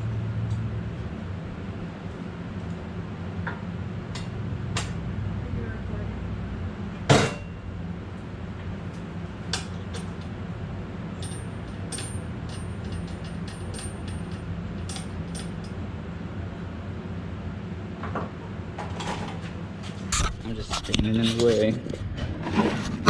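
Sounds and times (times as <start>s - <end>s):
steady low hum: 0.0s - 23.0s
metal clank: 7.1s - 7.6s.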